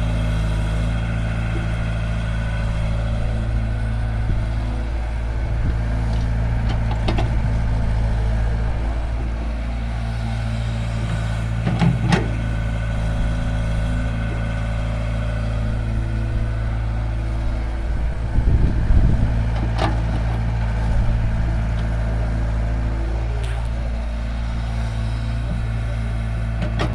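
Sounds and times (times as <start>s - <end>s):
diesel machinery droning: 0.0s - 26.9s.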